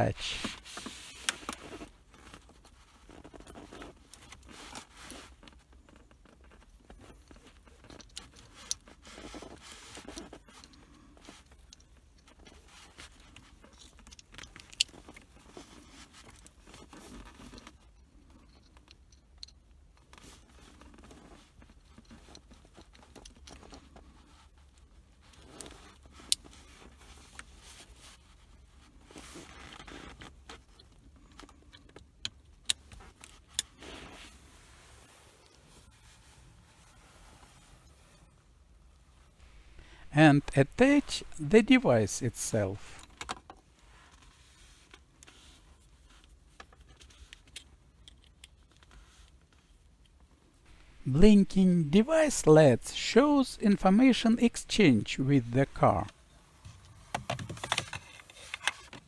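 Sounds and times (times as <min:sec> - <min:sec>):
cable and connectors rustling scrape: 0:00.2 - 0:02.6.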